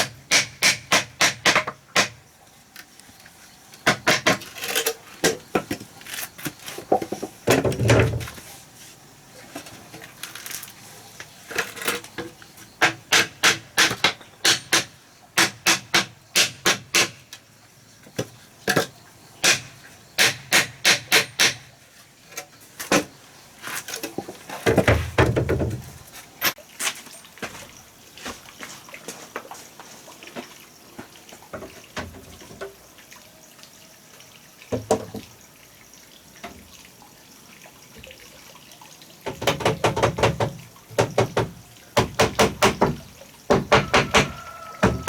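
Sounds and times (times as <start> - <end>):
sharp wooden knocks: 0.0 - 2.2, 3.8 - 4.5, 12.8 - 17.2, 24.6 - 25.8, 39.3 - 45.0.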